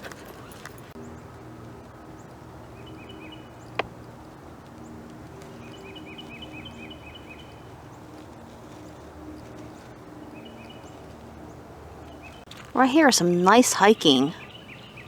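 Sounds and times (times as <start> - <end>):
songbird chirping: 4.7 - 9.6, 12.0 - 15.0.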